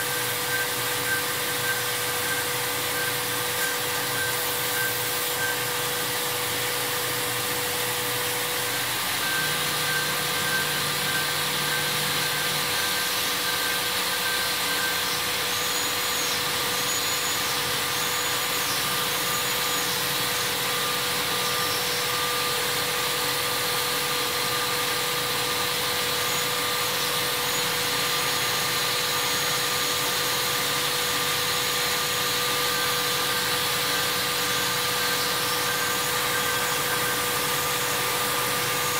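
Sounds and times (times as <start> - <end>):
high whine: 0.0 - 22.8
machining centre cutting hiss: 0.0 - 38.9
steady whining tones: 0.0 - 38.9.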